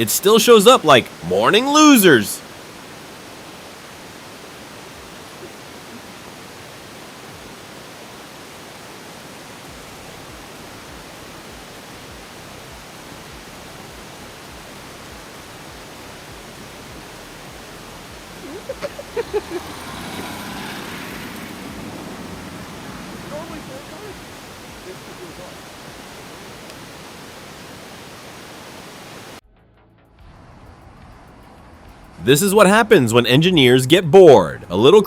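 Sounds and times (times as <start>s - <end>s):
train running through snow: 18.2s - 26.1s.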